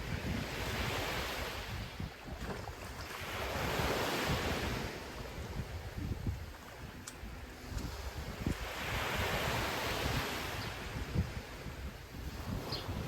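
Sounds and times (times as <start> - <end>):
wind buffeting microphone: 0.0 - 13.0
ocean surf breaking: 2.7 - 13.0.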